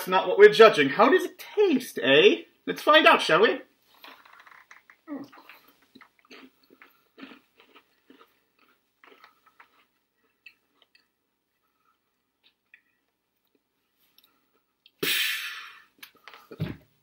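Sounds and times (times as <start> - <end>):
faint crunching of snack: 3.9 - 15.0.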